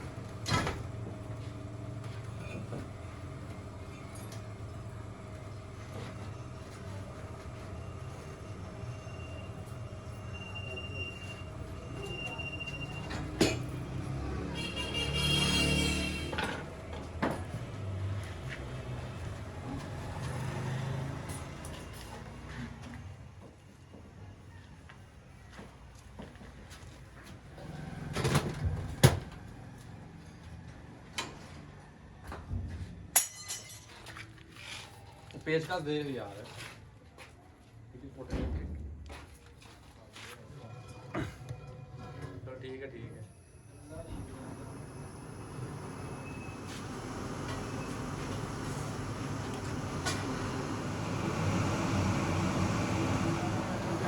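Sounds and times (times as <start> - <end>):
metalworking machinery humming: 0.0 - 22.4, 43.1 - 54.0
high-pitched metallic squeal: 8.8 - 13.2
sharp metal clank: 33.2 - 33.9.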